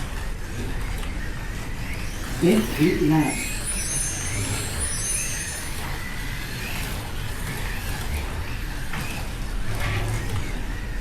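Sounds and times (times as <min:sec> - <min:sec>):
slot car motors whining: 0:00.0 - 0:11.0
slot cars running on track: 0:00.0 - 0:11.0.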